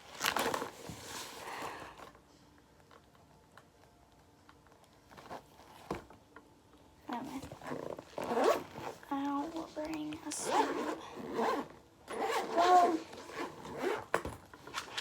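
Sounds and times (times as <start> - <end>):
bag rustling: 0.0 - 2.1, 7.1 - 9.7, 10.4 - 15.0.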